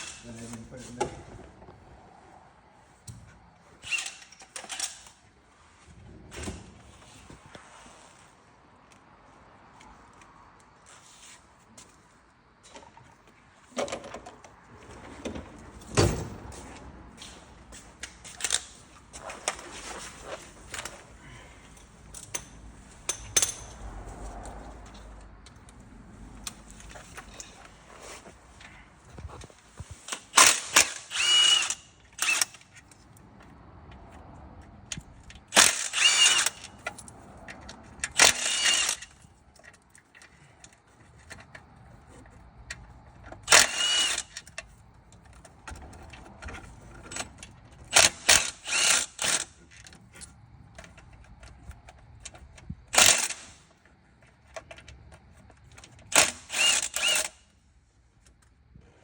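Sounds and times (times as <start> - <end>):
clinks of tools and parts: 18.0 - 25.8, 26.4 - 33.0
power tool whining bursts: 30.4 - 32.5, 35.6 - 36.7, 38.2 - 39.1, 43.4 - 44.4, 56.1 - 57.4.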